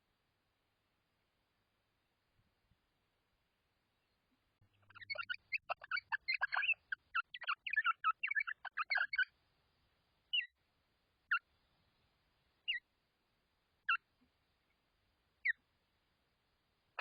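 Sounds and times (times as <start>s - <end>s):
birds chirping: 3.9s - 9.3s, 10.3s - 10.6s, 11.3s - 12.8s.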